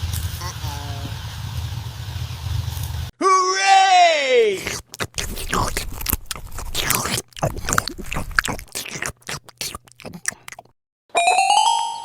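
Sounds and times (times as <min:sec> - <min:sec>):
crunching and scraping sounds: 0:04.4 - 0:10.7.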